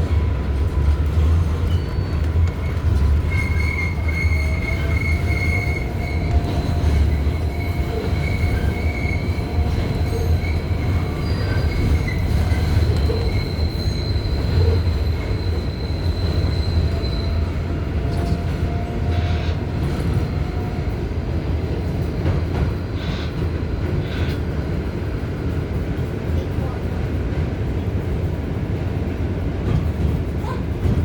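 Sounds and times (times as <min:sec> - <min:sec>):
subway wheels rumbling on rail: 0:00.0 - 0:31.0
high-pitched wheel squeal: 0:03.0 - 0:17.6.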